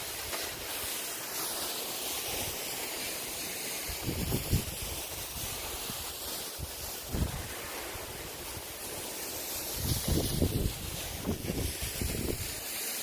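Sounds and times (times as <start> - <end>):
waterfall rushing: 0.0 - 13.0
wind bumps on microphone: 4.0 - 4.9, 7.1 - 7.5, 9.7 - 12.6.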